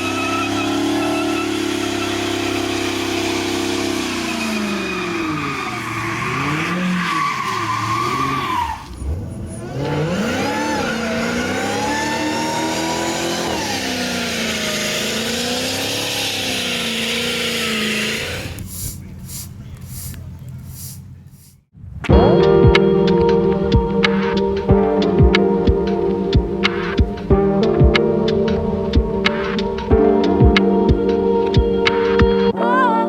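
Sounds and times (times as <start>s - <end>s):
car engine revving hard: 0.0s - 19.6s
tyres squealing: 0.0s - 21.6s.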